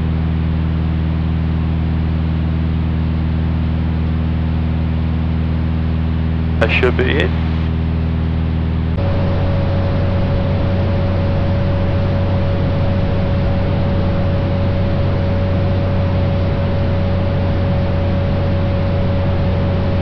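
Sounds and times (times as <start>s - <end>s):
aircraft engine and propeller drone: 0.0s - 20.0s
thin steady whine: 6.4s - 20.0s.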